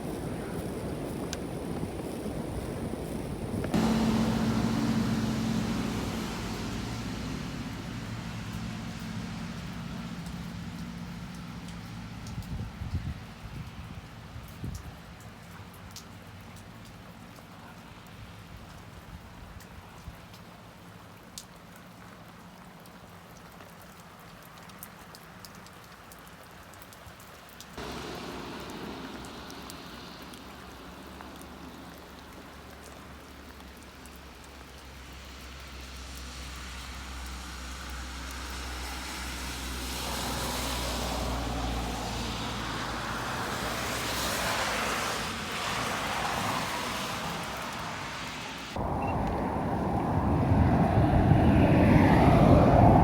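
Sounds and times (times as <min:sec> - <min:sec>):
steady rushing noise: 0:00.0 - 0:09.0, 0:27.8 - 0:33.2
water drips ticking: 0:00.0 - 0:19.0, 0:19.6 - 0:47.6
light rain: 0:00.0 - 0:53.0.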